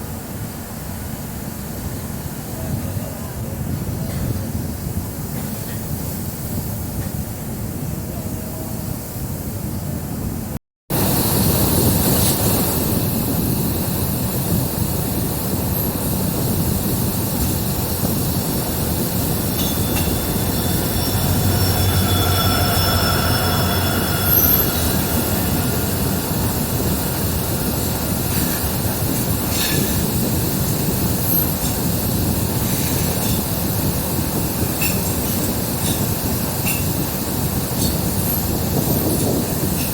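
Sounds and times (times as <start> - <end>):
train rumbling on track: 0.0 - 39.9
high wheel squeal: 15.6 - 39.9.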